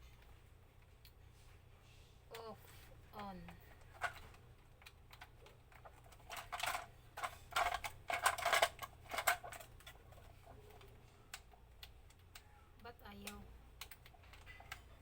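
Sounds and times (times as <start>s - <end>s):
plastic toy clicking and rattling: 3.2s - 12.4s, 13.2s - 15.0s.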